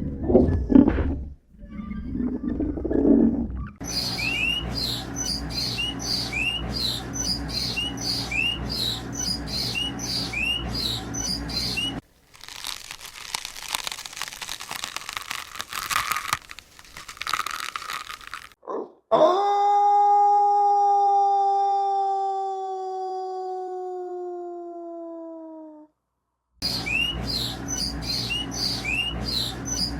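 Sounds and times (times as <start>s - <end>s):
bird chirping: 3.8s - 12.0s, 26.6s - 29.9s
crackling crunching rustle: 12.0s - 18.6s.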